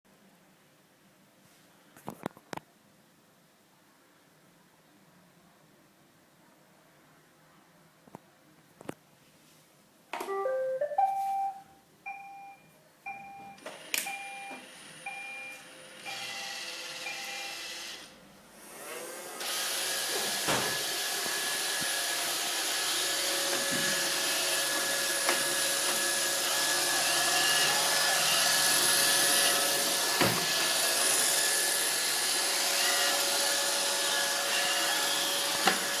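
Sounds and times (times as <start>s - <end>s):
robot vacuum rising tune: 10.3s - 11.6s
robot vacuum beeps: 10.3s - 17.7s
vacuum motor and brushes running: 16.1s - 36.0s.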